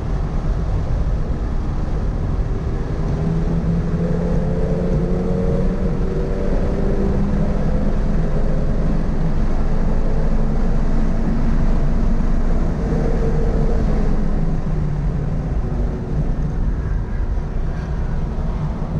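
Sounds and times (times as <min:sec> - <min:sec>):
wind and road noise: 0:00.0 - 0:18.9
car engine accelerating: 0:02.6 - 0:16.6.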